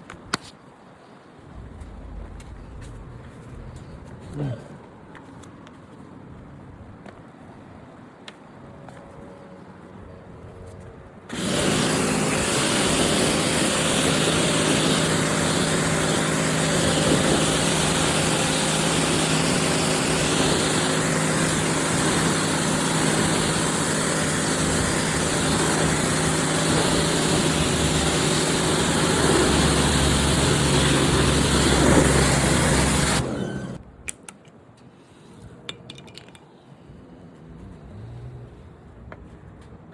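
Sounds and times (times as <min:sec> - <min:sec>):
pressure washer motor hum: 0:11.3 - 0:33.8
water jet hissing: 0:11.3 - 0:33.8.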